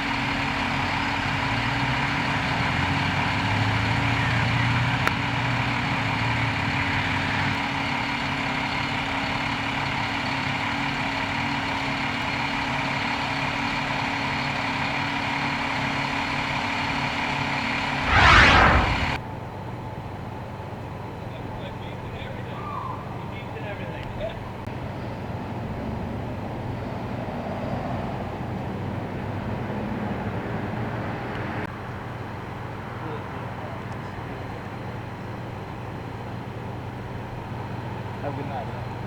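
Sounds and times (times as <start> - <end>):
loud rush of noise: 18.0 - 19.2.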